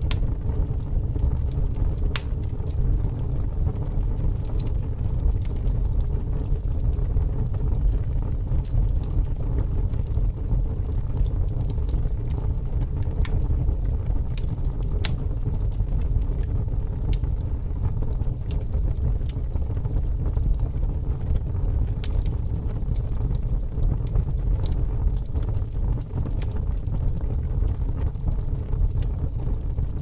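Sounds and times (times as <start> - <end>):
fire burning: 0.0 - 30.0
fire crackling and popping: 0.0 - 30.0.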